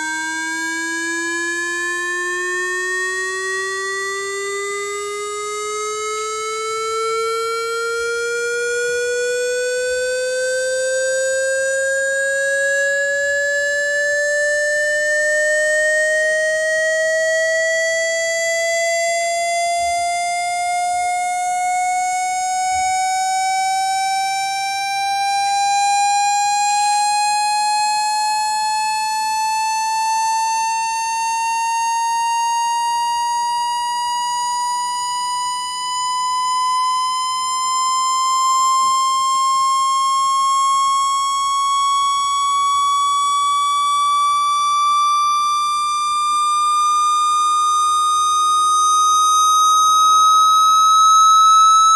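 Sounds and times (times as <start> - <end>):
buzzy tone sweeping upward: 46.2 - 51.9.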